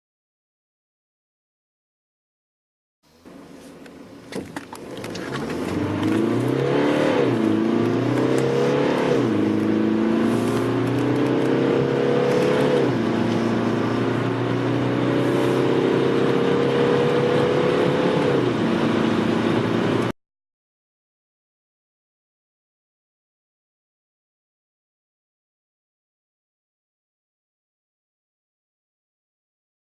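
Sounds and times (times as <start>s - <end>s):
car engine accelerating hard: 3.3s - 20.1s.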